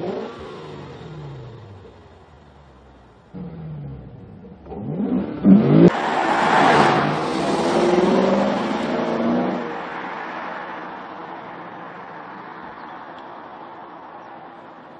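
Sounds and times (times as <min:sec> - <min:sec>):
car engine accelerating hard: 0:00.0 - 0:09.7.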